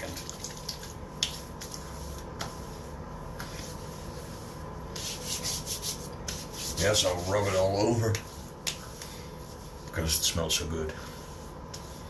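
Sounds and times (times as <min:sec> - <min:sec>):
hands rubbing: 0:01.2 - 0:10.0.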